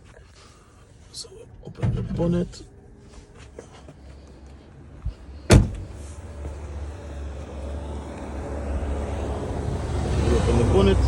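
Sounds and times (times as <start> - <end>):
loud trunk clunk: 5.5 - 6.0.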